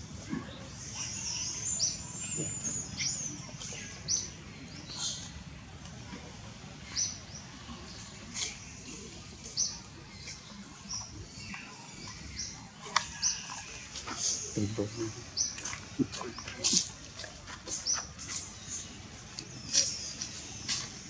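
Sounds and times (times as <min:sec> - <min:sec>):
bird chirping: 0:06.8 - 0:21.0.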